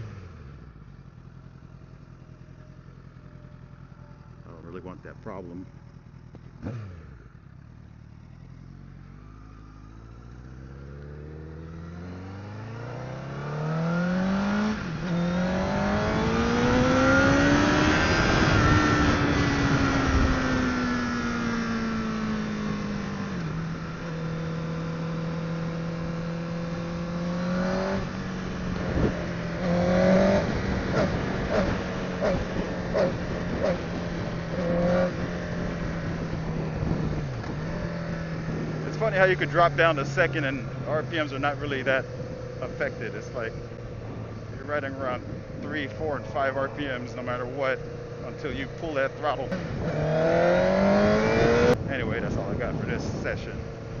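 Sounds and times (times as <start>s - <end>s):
motorcycle engine accelerating: 0.0s - 54.0s
wind rush: 28.7s - 29.3s, 30.4s - 38.9s, 49.5s - 54.0s.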